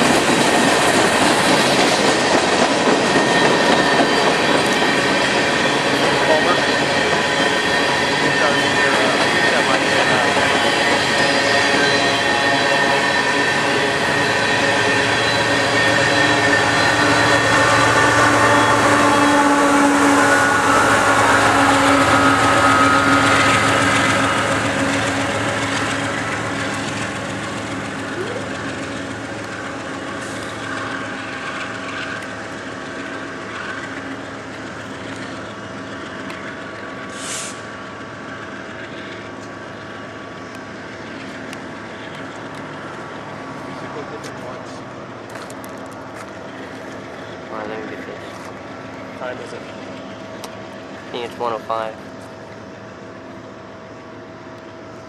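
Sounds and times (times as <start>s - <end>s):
freight train rolling by: 0.0s - 55.0s
high screech: 5.0s - 25.9s.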